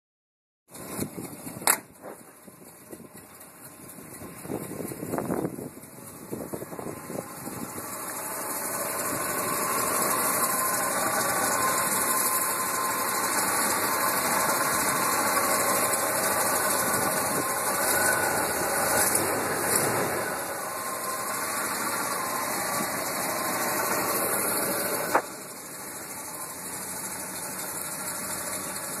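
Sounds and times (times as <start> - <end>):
truck engine cranking and running: 0.7 - 29.0
sharp click: 1.6 - 1.9.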